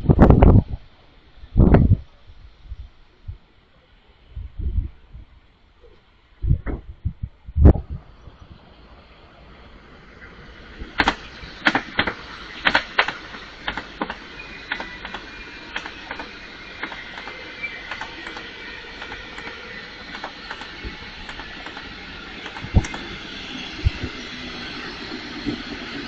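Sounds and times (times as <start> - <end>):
train rolling noise: 0.0 - 26.0
high wheel squeal: 9.8 - 26.0
train wheels clicking over joints: 10.2 - 26.0.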